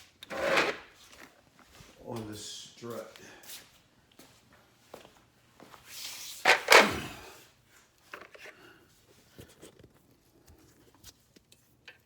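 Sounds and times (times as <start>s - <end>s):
hand tools clattering: 6.5s - 7.2s.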